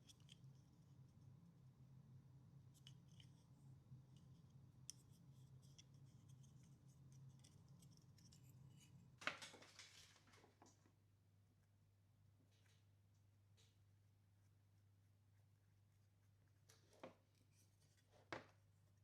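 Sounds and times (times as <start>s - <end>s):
small parts and tools clicking: 0.0s - 0.6s, 4.1s - 10.1s
low steady hum: 0.0s - 9.2s.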